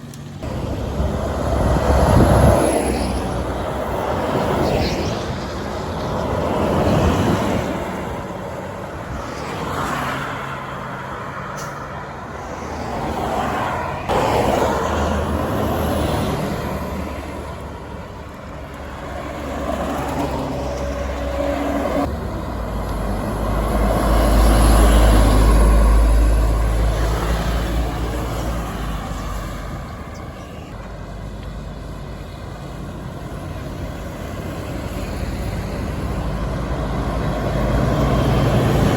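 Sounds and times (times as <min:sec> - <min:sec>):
large vehicle low rumble: 0:00.0 - 0:09.7
road traffic passing: 0:00.0 - 0:38.9.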